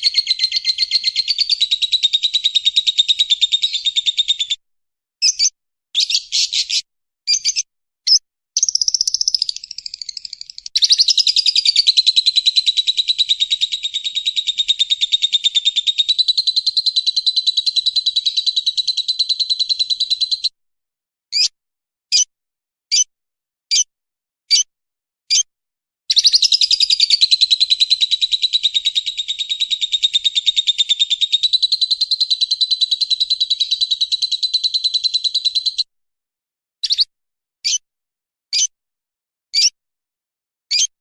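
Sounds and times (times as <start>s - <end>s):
lovebird chattering song: 0.0s - 4.6s, 5.2s - 20.5s, 26.1s - 35.9s, 36.8s - 37.8s, 40.7s - 40.9s
single bird chirps: 0.0s - 4.6s, 5.2s - 20.6s, 21.3s - 21.5s, 24.5s - 24.7s, 25.3s - 25.5s, 26.1s - 35.9s, 36.8s - 37.8s, 38.5s - 38.8s, 39.6s - 39.8s, 40.7s - 40.9s.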